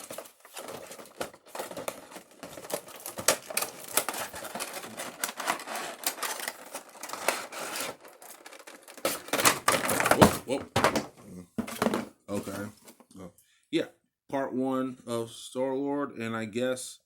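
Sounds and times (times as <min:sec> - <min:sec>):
packaging clicks and rustles: 0:00.0 - 0:11.0.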